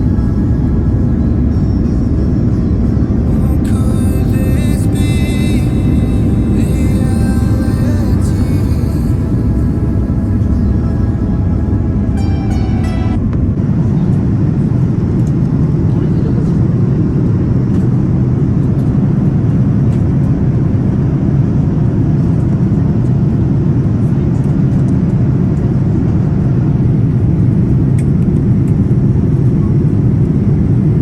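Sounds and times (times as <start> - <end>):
airliner cabin rumble and hiss: 0.0 - 12.2, 13.4 - 31.0.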